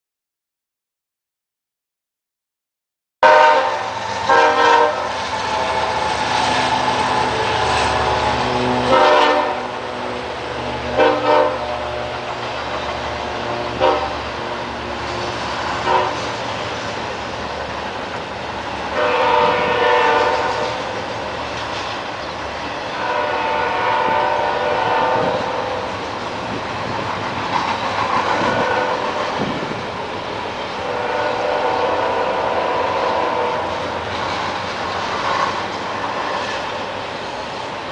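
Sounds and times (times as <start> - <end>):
train horn blasts: 3.2 - 12.4, 13.1 - 14.7, 15.8 - 16.4, 18.9 - 20.9, 22.9 - 25.9, 28.4 - 29.2, 30.8 - 34.0
rumble of rolling freight train: 3.2 - 37.9.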